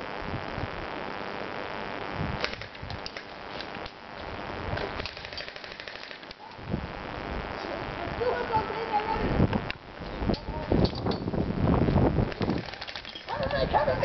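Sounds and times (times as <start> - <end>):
airsoft guns firing: 2.4 - 3.3, 5.0 - 6.2, 12.3 - 13.6.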